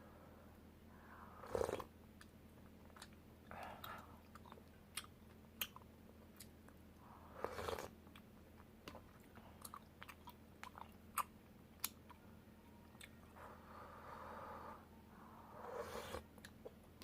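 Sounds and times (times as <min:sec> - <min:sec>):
chewing soft rice cakes: 0:01.5 - 0:12.2.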